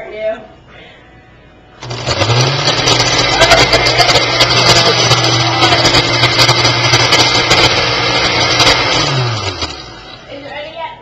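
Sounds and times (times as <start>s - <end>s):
blender motor humming: 1.8s - 10.4s
milkshake churning: 1.8s - 10.5s.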